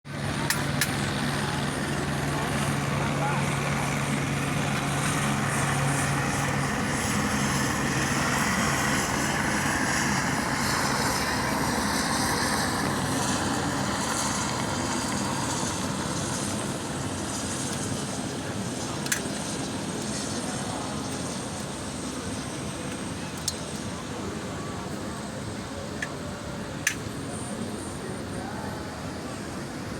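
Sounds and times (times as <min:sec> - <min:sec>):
helicopter rotor and engine: 0:00.1 - 0:29.9.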